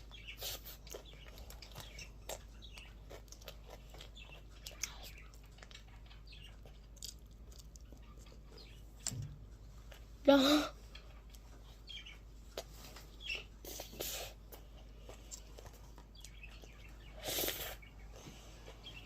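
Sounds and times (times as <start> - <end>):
chewing and crunching ice cream cone: 0.0 - 9.1.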